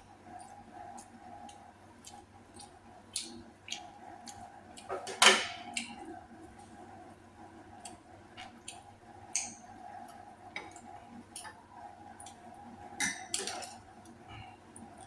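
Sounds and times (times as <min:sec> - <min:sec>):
faint steady hum: 0:00.0 - 0:15.0
wet chewing: 0:00.3 - 0:04.9.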